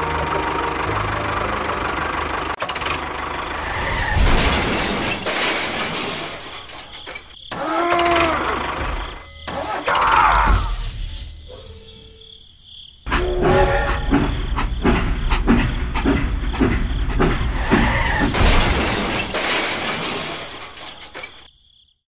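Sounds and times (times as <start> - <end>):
toy steam locomotive chugging: 0.0 - 3.6, 13.2 - 18.2.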